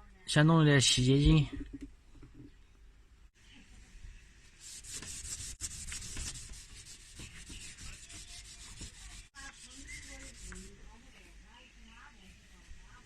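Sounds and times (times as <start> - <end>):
gritty scrubbing of rubber: 4.6 - 10.8.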